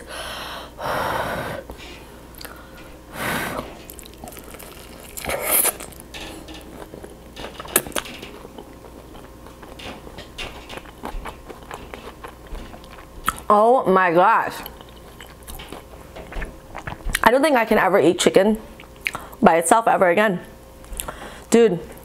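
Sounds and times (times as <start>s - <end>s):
wet mouth clicks: 2.4s - 2.6s, 18.8s - 19.3s
biting and chewing fried chicken: 3.8s - 13.5s, 14.6s - 17.3s.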